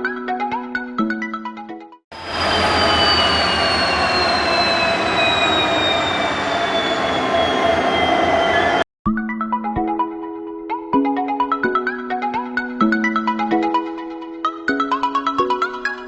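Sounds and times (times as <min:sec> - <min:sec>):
train rumble: 0:02.2 - 0:08.8
train wheels squealing: 0:02.2 - 0:08.8.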